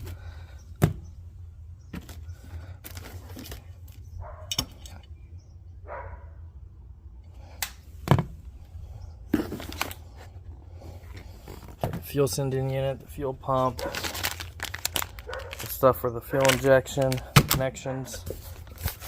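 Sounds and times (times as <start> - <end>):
packaging rustling: 2.0 - 4.0, 9.4 - 19.0.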